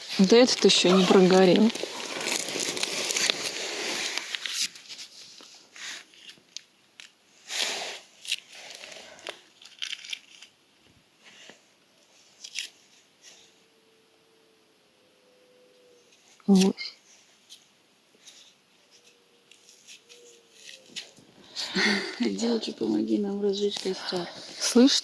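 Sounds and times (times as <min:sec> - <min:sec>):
bark rustling: 0:00.0 - 0:04.2
twigs snapping and crunching: 0:00.2 - 0:04.6, 0:08.2 - 0:10.5.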